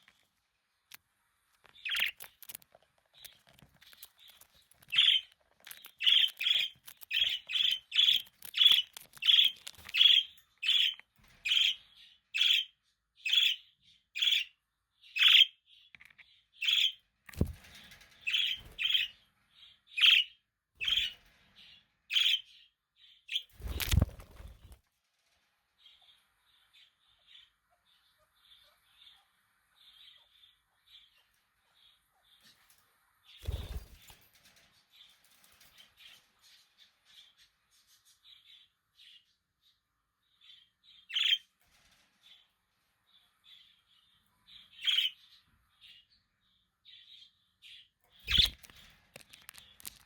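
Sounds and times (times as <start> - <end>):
brief rustle: 48.2 - 50.0.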